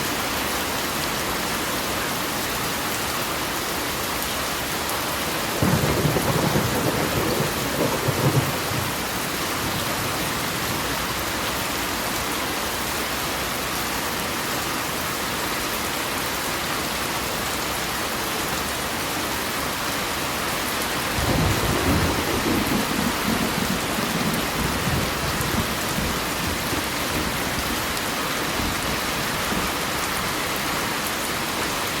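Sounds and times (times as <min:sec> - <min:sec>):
heavy rain: 0:00.0 - 0:32.0
thunder rumbling: 0:05.6 - 0:10.9, 0:21.2 - 0:29.8.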